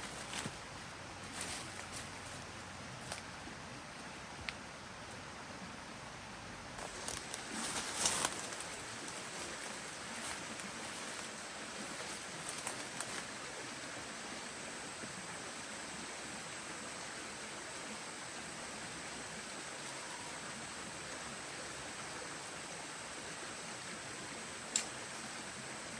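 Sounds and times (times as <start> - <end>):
rustles or crackles: 0.0 - 3.3, 6.8 - 13.4
steady outdoor hiss: 0.0 - 25.9.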